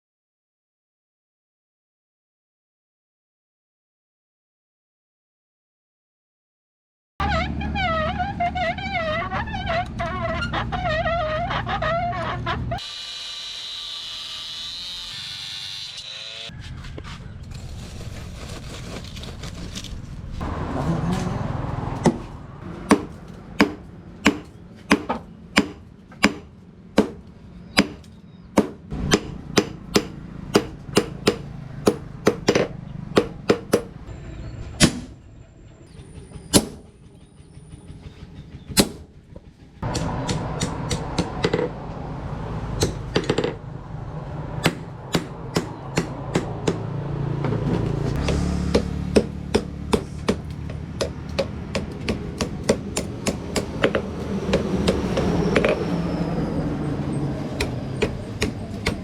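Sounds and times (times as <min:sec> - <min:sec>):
hammer striking metal on anvil: 0:22.9 - 0:27.2, 0:27.8 - 0:33.9, 0:39.8 - 0:41.6.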